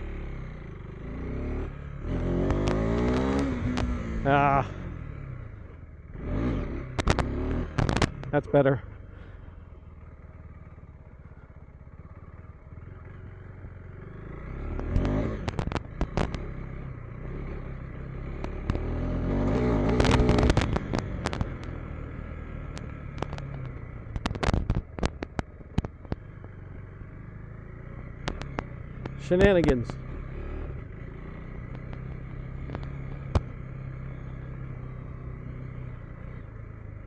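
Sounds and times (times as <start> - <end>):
dirt bike engine revving: 0.0 - 5.4, 6.1 - 9.3, 14.0 - 22.0
sharp clicks and knocks: 2.4 - 4.2, 6.9 - 8.4, 14.7 - 16.5, 18.4 - 21.9, 22.6 - 26.6, 28.1 - 30.1, 31.6 - 33.6.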